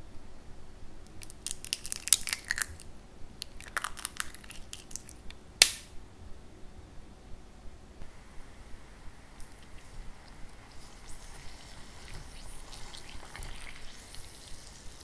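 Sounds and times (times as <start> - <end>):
hardened sugar crackling and snapping: 1.0 - 5.9, 9.3 - 15.0.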